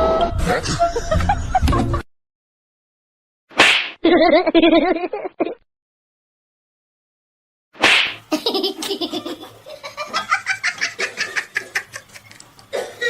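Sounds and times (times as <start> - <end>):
person laughing: 0.4 - 2.0, 4.0 - 5.6.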